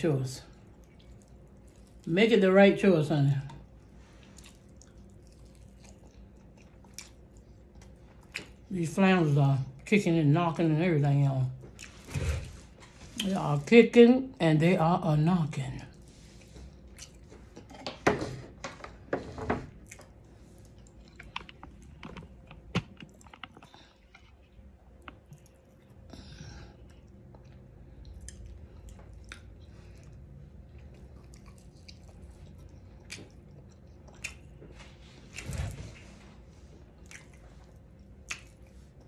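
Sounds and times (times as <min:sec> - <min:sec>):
wet chewing: 0:00.5 - 0:02.1, 0:03.6 - 0:08.7, 0:15.9 - 0:18.0, 0:19.7 - 0:39.0
crunchy chewing: 0:04.1 - 0:08.7, 0:19.7 - 0:26.1, 0:26.8 - 0:35.7.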